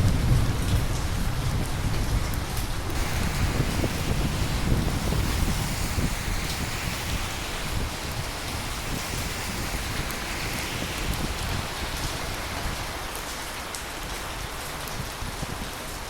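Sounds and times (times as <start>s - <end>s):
steady rain falling: 0.0s - 16.0s
low thunder rumble: 2.9s - 14.0s.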